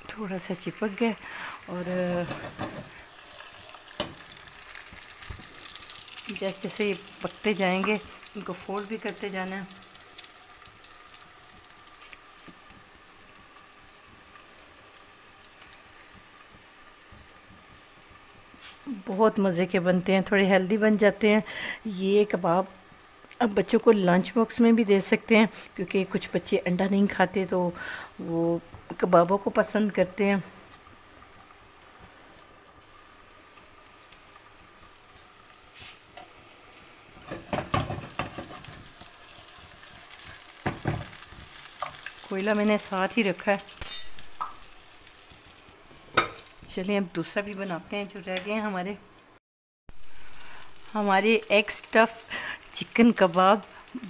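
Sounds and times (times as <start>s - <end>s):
chicken frying in oil: 0.0s - 54.0s
knocks in pan: 37.3s - 38.6s, 40.6s - 41.2s, 46.1s - 46.4s.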